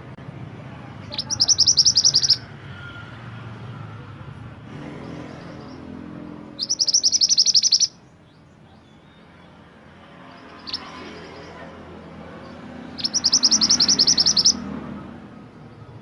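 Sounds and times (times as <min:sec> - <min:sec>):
songbird trilling: 0:01.0 - 0:02.5, 0:06.5 - 0:09.6, 0:10.3 - 0:11.6, 0:12.4 - 0:14.7.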